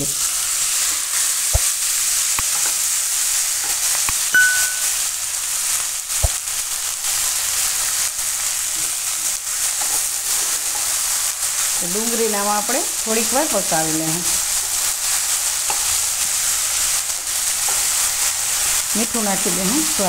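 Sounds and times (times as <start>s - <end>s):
onions sizzling in hot oil: 0.0s - 20.0s
short ding: 4.3s - 5.0s.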